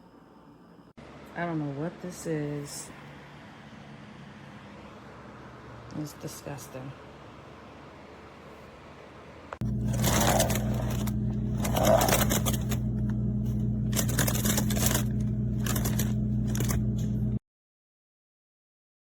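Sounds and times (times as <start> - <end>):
low electrical hum: 0.0 - 17.4
objects scraping and rustling: 9.6 - 12.8.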